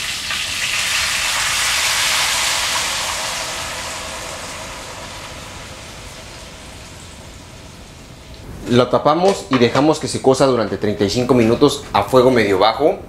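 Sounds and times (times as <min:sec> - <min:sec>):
sauce being poured: 0:00.0 - 0:08.0
chicken sizzling in oil: 0:00.0 - 0:08.3.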